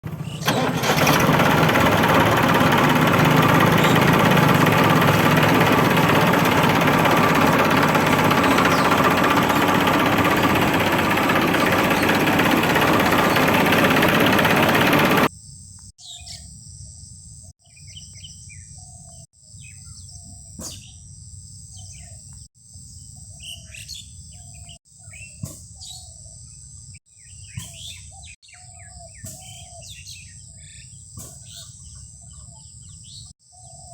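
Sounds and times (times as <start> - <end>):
birds chirping: 0.0 - 15.3.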